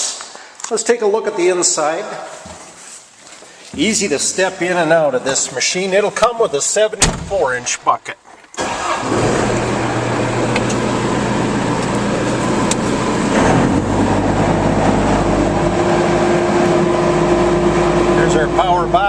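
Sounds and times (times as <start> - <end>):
diesel engine running: 8.6 - 19.0.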